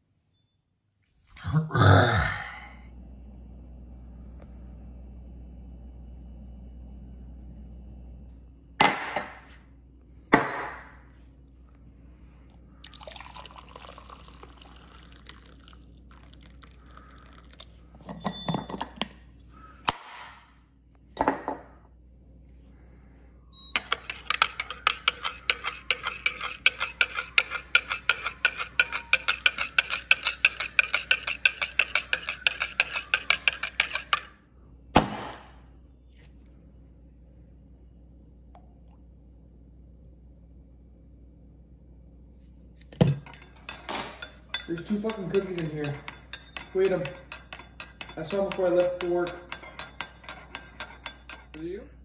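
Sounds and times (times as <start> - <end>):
rapid even clinking: 43.1 - 51.6.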